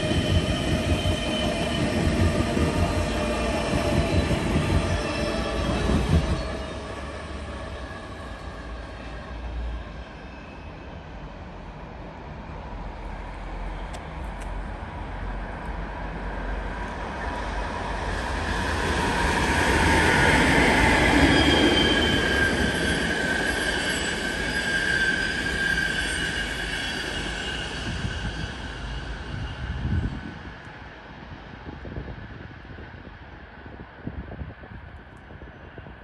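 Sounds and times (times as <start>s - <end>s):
train passing: 0.0s - 36.0s
high wheel squeal: 19.7s - 30.2s.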